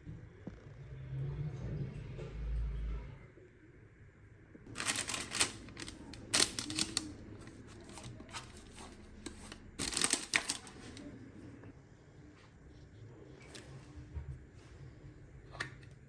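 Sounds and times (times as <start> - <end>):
objects rustling and clicking: 4.7 - 11.1.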